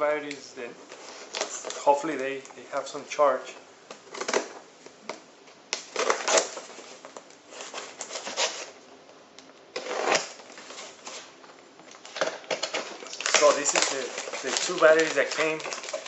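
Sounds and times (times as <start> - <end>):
plastic bags rustling: 0.8 - 2.7, 5.8 - 8.8, 9.7 - 16.0.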